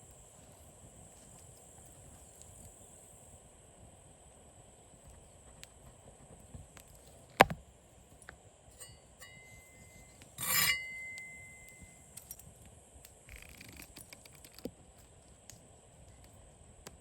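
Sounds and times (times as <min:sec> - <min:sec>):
light scraping: 0:08.8 - 0:12.0
metal cookware clinking: 0:08.8 - 0:12.1
small clicks: 0:13.0 - 0:14.7.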